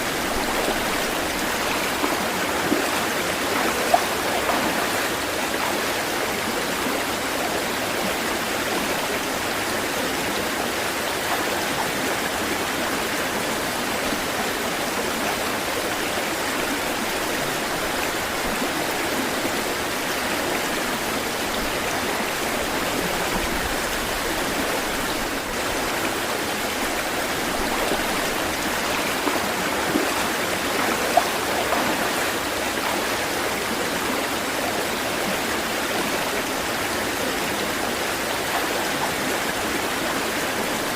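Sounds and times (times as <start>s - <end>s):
stream running over rocks: 0.0s - 40.9s.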